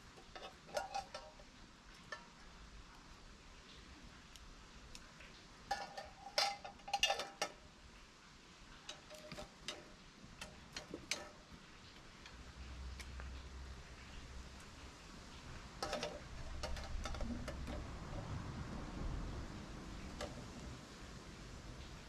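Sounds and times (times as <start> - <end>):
metal clinking: 0.0 - 2.6, 5.6 - 7.6, 8.7 - 12.4, 15.5 - 18.4.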